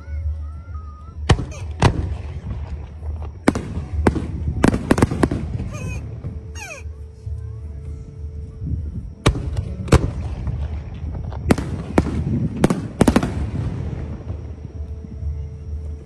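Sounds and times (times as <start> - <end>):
fireworks bangs: 1.1 - 6.8, 9.2 - 14.8.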